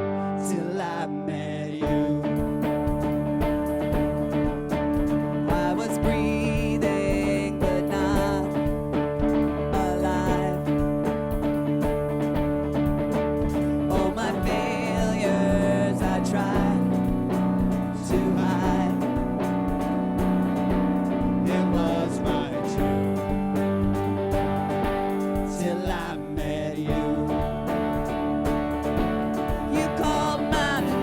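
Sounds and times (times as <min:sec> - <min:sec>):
band playing with guitar: 0:00.0 - 0:31.0
person singing: 0:00.0 - 0:31.0.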